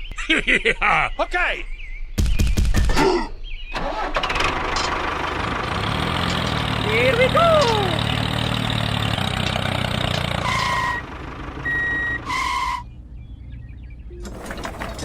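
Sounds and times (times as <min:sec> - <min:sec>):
toy vehicle engine-like noise: 0:03.8 - 0:08.3
short electronic beeps: 0:11.6 - 0:12.2.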